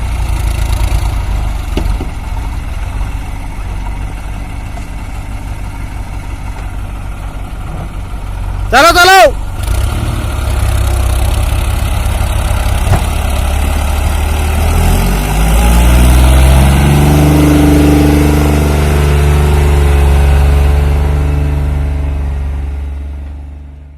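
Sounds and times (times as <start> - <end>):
heavy diesel engine revving: 0.0 - 23.3
short knock: 12.8 - 13.2.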